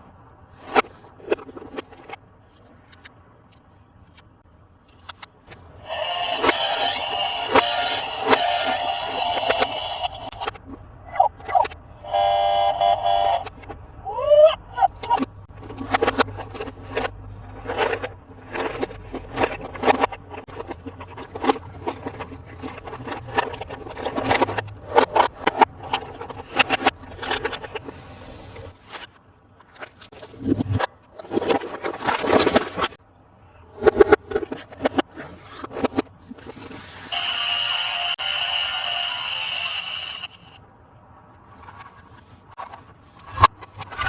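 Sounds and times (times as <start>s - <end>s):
plastic toy scrapes and clicks: 4.9s - 12.3s, 15.0s - 33.0s, 33.8s - 40.6s, 41.5s - 44.0s
toy electronic sound effect: 5.8s - 13.6s, 37.1s - 40.6s.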